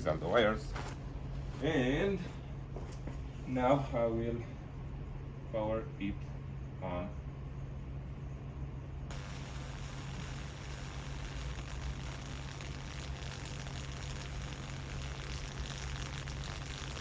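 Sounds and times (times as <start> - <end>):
electric arc buzzing and crackling: 9.1 - 17.0.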